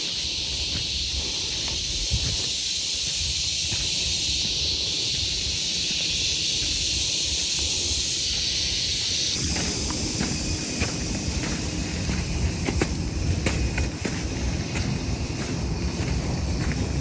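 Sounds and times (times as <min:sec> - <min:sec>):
insect chorus hiss: 0:00.0 - 0:17.0
wind rumble on microphone: 0:00.0 - 0:17.0.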